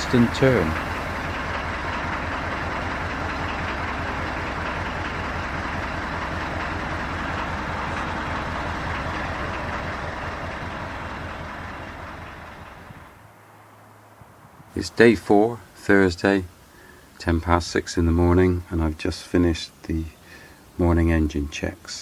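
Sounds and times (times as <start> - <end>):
boat diesel engine running: 0.0 - 15.0.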